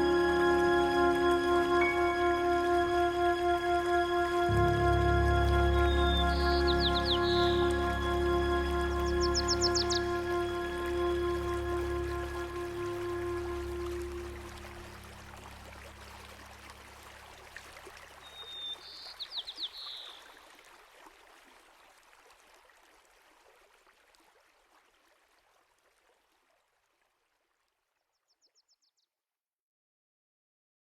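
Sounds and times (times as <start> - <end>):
bird calling: 0.0 - 14.9
stream running: 0.0 - 28.0.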